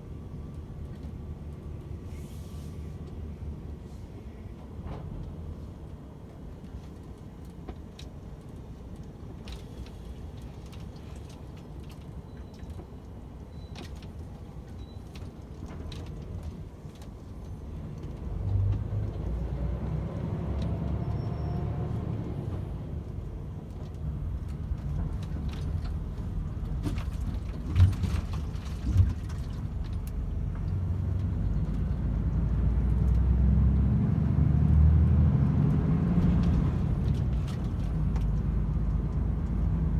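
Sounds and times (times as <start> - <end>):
truck diesel engine and road noise: 0.0 - 39.9.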